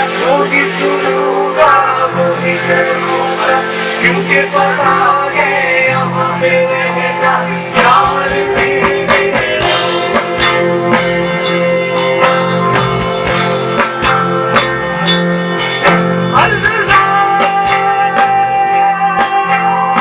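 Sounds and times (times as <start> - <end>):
live band playing instrumental: 0.0 - 20.0
drum hits on steady beat: 7.2 - 20.0.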